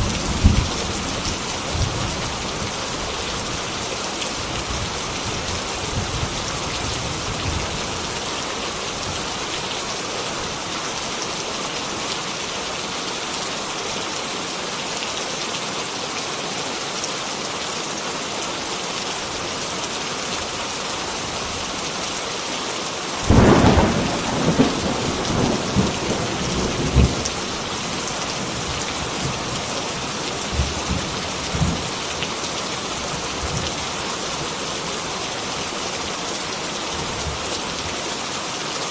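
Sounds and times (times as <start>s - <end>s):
thunderclap rumbling: 0.0s - 2.4s, 23.2s - 29.5s
heavy rain falling: 0.0s - 38.9s.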